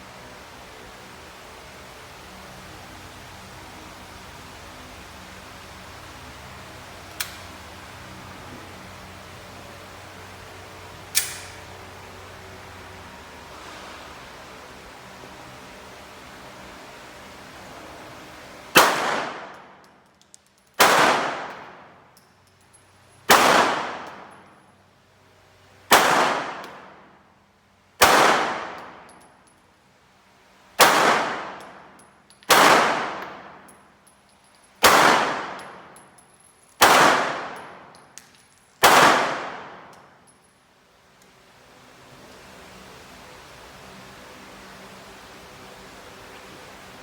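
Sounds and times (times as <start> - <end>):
gunshots with ringing decay: 18.8 - 19.6, 20.8 - 21.5, 23.3 - 24.1, 25.9 - 26.6, 28.0 - 28.8, 30.8 - 31.6, 32.5 - 33.4, 34.8 - 35.8, 36.8 - 37.8, 38.8 - 39.8.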